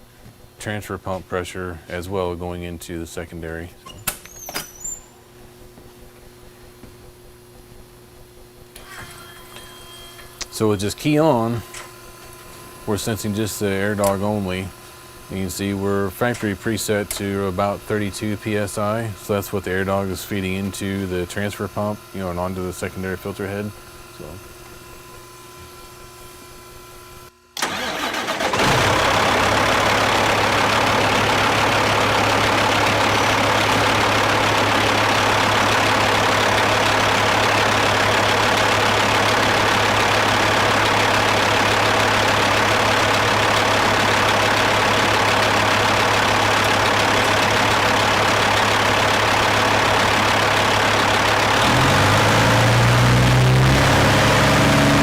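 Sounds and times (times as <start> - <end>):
electric pump humming: 5.0 - 55.0
diesel engine cranking: 27.6 - 55.0
diesel engine idling: 27.6 - 55.0.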